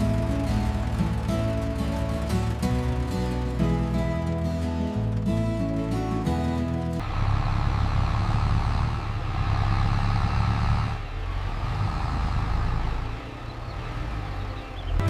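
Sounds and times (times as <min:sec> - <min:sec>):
music notes: 0:00.0 - 0:07.0
heavy vehicle engine running: 0:00.0 - 0:15.0.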